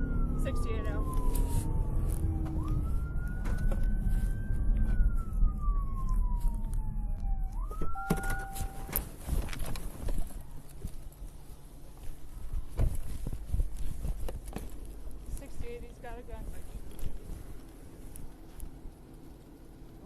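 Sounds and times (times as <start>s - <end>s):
police siren wailing: 0.0s - 9.6s
low rumble: 0.0s - 20.0s.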